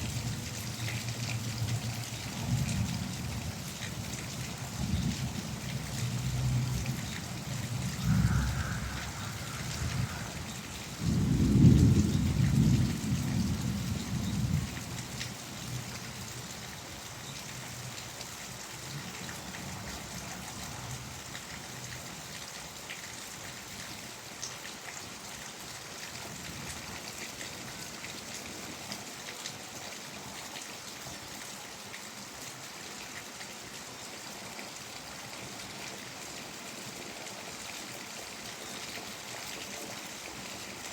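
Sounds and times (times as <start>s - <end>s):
steady rain falling: 0.0s - 40.9s
thunder rolling: 7.6s - 13.8s.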